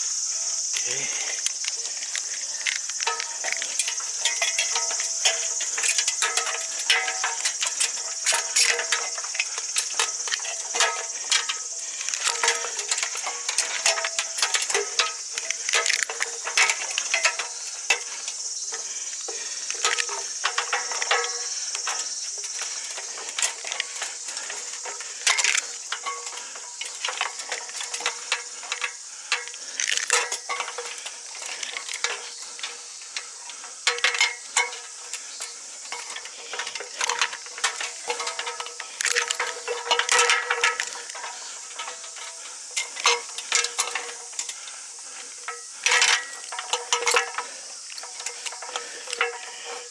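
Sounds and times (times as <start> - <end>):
metallic clinks of climbing hardware: 0.0 - 49.9
rope rustling: 0.0 - 49.9
steady high hiss: 0.0 - 49.9.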